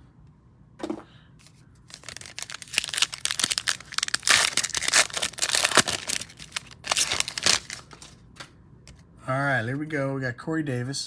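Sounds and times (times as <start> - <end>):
foil wrapper crinkling and tearing: 1.9 - 8.2.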